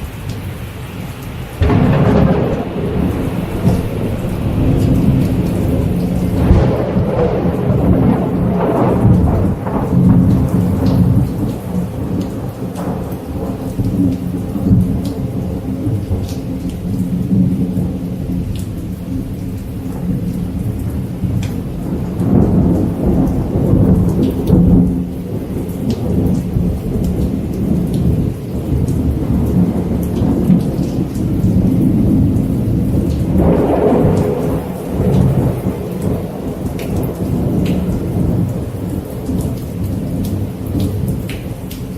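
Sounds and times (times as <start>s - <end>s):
rain falling: 0.0s - 41.9s
raindrop ticks: 0.0s - 41.9s
thunder rumbling: 0.0s - 41.9s.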